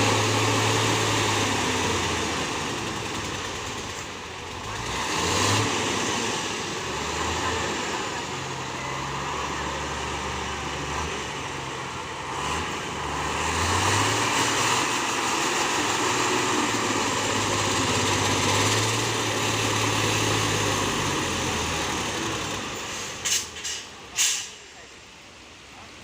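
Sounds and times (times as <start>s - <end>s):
diesel truck engine under load: 0.0s - 25.7s
air brakes hissing: 22.7s - 24.8s.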